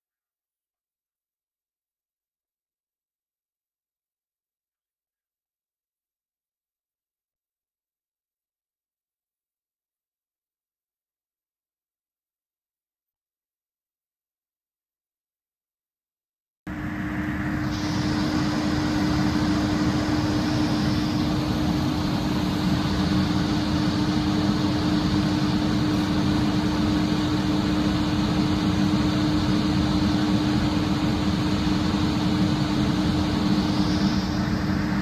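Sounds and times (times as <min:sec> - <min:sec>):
fire engine motor running: 0:16.7 - 0:35.0.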